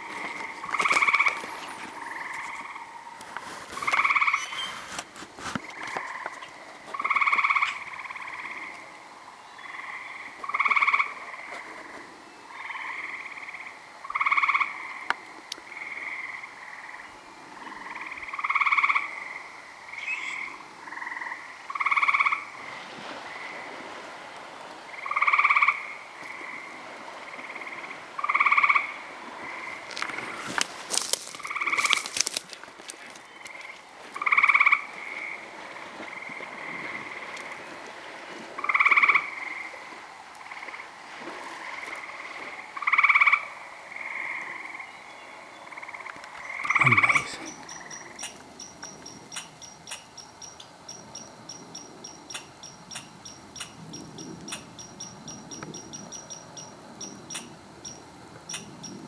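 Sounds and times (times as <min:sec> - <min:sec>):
frogs croaking: 0:00.0 - 0:59.0.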